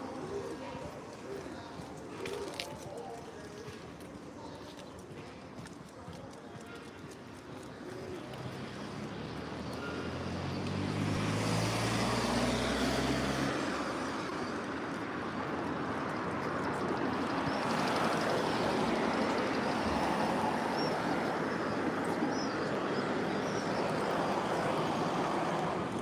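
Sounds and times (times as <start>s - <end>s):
vehicle engine passing: 8.5s - 14.4s.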